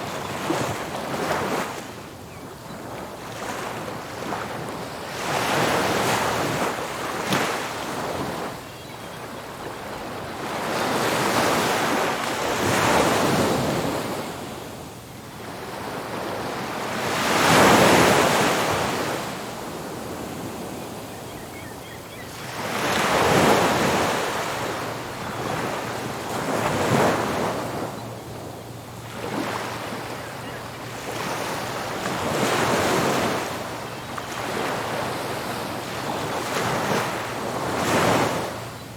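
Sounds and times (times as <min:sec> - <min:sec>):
ocean waves crashing on beach: 0:09.5 - 0:21.3, 0:22.3 - 0:38.9.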